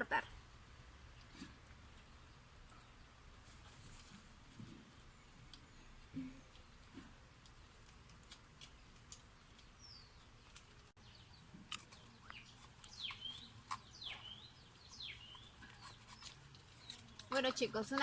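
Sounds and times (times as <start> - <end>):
faint bird chirps: 11.0 - 17.3.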